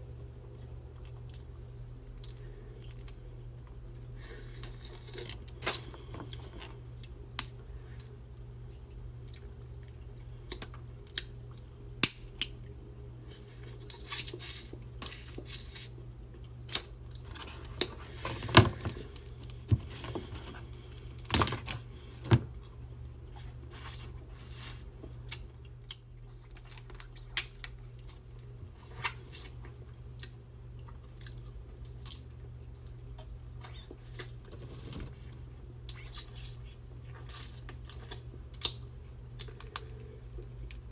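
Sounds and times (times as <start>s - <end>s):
steady low hum: 0.0s - 40.9s
shells cracking and snapping: 12.0s - 12.7s.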